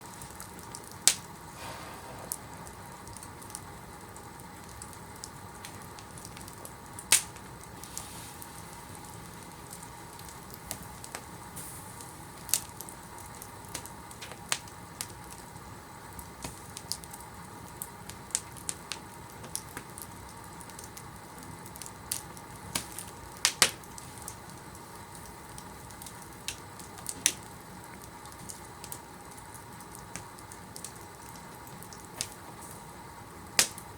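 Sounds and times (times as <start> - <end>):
fire crackling and popping: 0.0 - 33.9.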